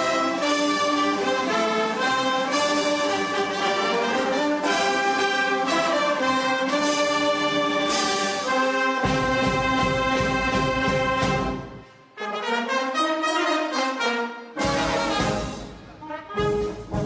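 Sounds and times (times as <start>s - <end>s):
brass band music: 0.0s - 17.0s.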